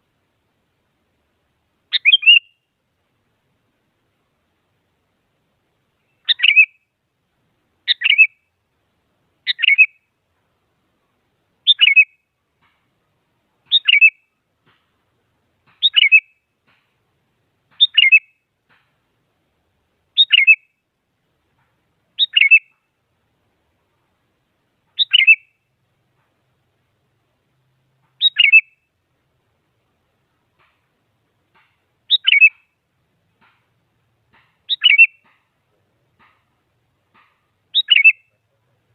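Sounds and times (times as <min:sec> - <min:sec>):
bulbul calling: 0:01.9 - 0:02.7, 0:06.0 - 0:06.9, 0:07.9 - 0:08.5, 0:09.4 - 0:10.1, 0:11.6 - 0:12.8, 0:13.6 - 0:14.3, 0:15.6 - 0:16.9, 0:17.7 - 0:18.9, 0:20.2 - 0:20.7, 0:22.2 - 0:22.9, 0:24.9 - 0:25.6, 0:28.0 - 0:28.9, 0:31.5 - 0:32.8, 0:34.3 - 0:35.6, 0:36.2 - 0:38.8.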